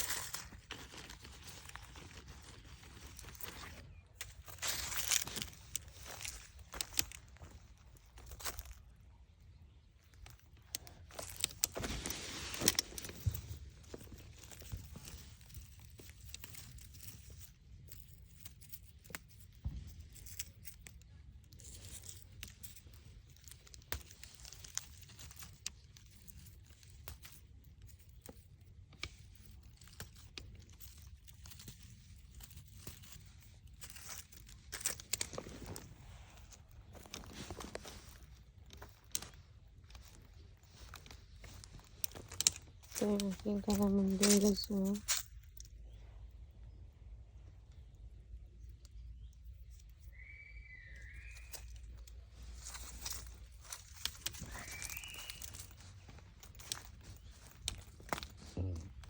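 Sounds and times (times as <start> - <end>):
handling noise rustling and clicking: 0.0 - 46.8, 47.4 - 59.0.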